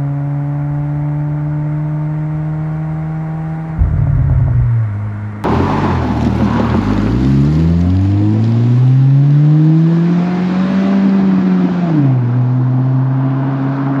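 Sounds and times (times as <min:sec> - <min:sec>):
car engine revving: 0:01.2 - 0:11.6.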